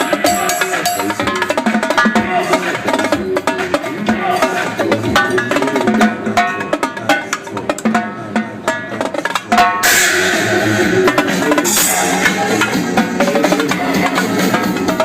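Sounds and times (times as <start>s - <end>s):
cymbal crash ringing: 0.0s - 1.5s, 9.5s - 15.0s
electronic dance music: 0.0s - 8.6s, 9.6s - 15.0s
fast drum strokes: 0.0s - 15.0s.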